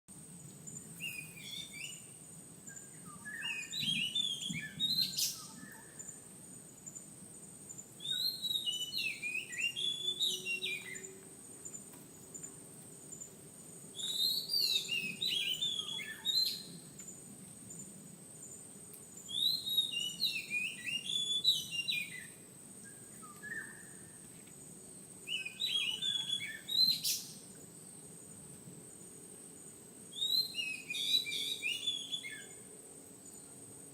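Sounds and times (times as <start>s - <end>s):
bird singing whistled notes: 0.8s - 6.2s, 8.0s - 11.8s, 13.9s - 16.9s, 19.2s - 24.2s, 25.2s - 27.5s, 30.1s - 32.6s.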